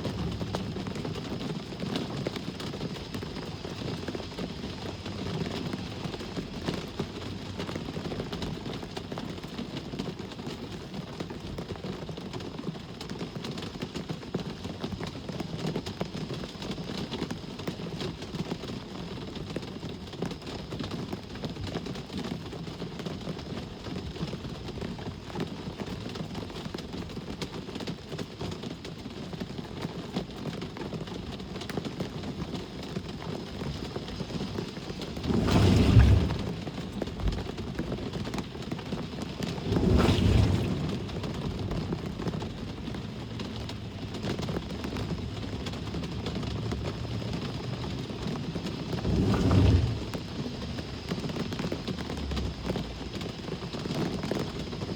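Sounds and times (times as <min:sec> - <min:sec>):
rumble of road traffic: 0:00.0 - 0:09.4, 0:31.1 - 0:54.9
raindrops ticking on hard surfaces: 0:00.0 - 0:54.9.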